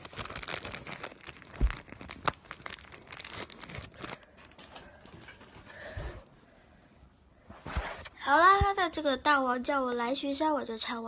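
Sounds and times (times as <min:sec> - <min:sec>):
rustling and crinkling handling: 0:00.0 - 0:06.3.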